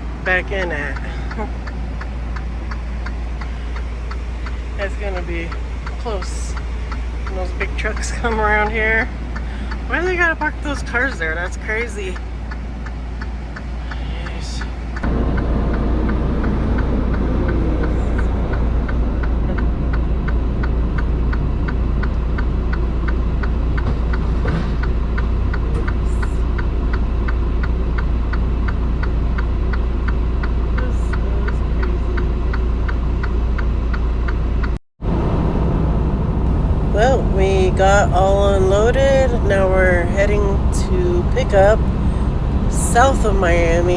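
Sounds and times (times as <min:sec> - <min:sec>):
diesel engine idling: 0:00.0 - 0:15.1, 0:36.5 - 0:43.9.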